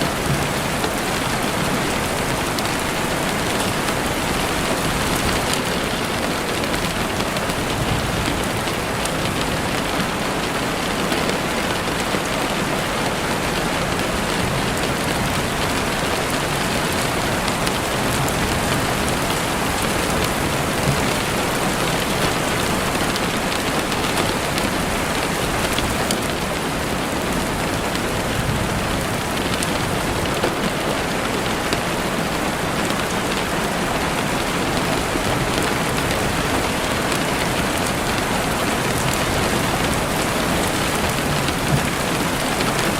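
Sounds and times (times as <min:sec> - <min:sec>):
heavy rain on window: 0:00.0 - 0:42.9.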